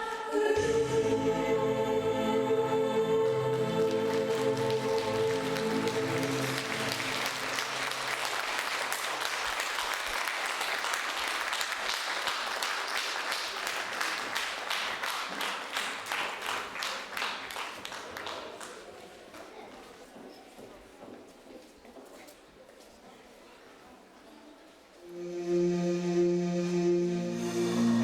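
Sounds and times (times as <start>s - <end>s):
audience applauding: 3.3s - 18.8s
song last note: 25.1s - 28.0s.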